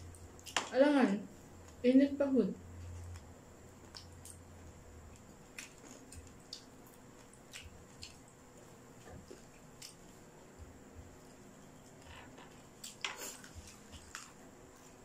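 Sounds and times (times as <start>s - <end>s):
people chewing: 2.7s - 15.0s.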